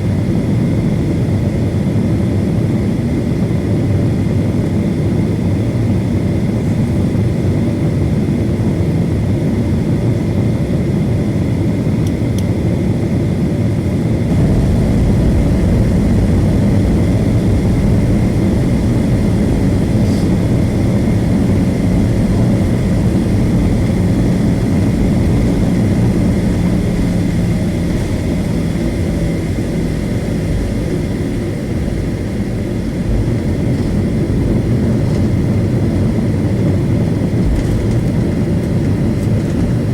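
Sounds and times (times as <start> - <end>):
jet engines rumbling: 0.0 - 39.9
faint steady whine: 14.0 - 39.9.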